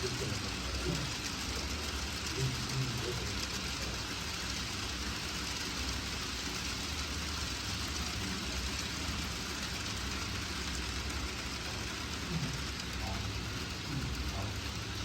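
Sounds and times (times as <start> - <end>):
model train wheels rolling on track: 0.0 - 15.0.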